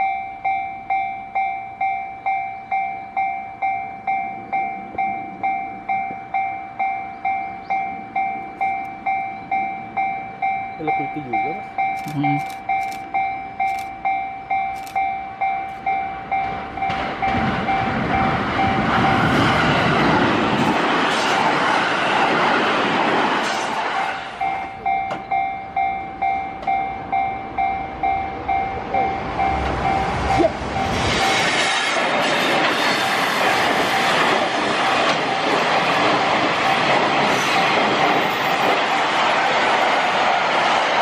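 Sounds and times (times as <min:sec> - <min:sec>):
level crossing alarm ringing: 0:00.0 - 0:19.4, 0:24.4 - 0:31.5
electric train wheel and rail noise: 0:00.0 - 0:41.0
express train rushing past: 0:00.0 - 0:41.0.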